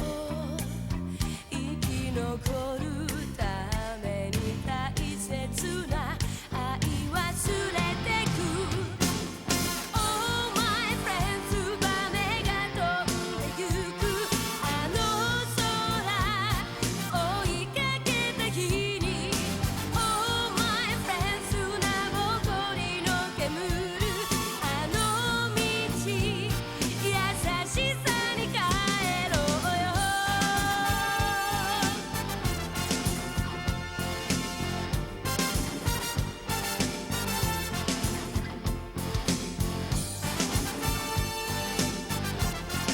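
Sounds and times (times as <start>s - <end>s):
person singing with vibrato: 0.0s - 33.6s
drum beat: 6.8s - 42.9s.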